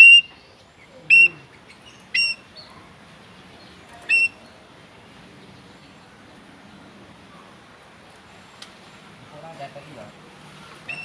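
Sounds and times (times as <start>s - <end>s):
bird calling sharp notes: 0.0s - 2.7s, 4.0s - 4.6s, 10.6s - 11.0s.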